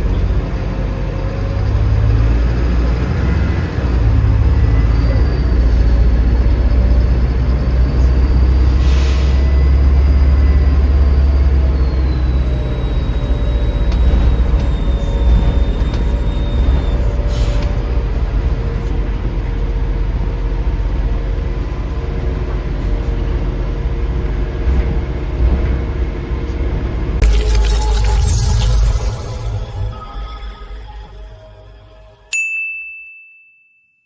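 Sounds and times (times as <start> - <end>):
diesel bus engine rumbling: 0.0 - 27.2.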